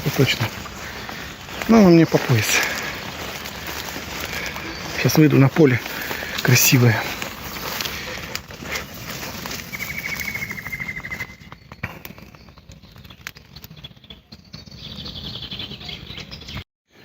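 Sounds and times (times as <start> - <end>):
footsteps in tall grass: 0.0 - 13.8
small bird trilling: 9.6 - 11.7.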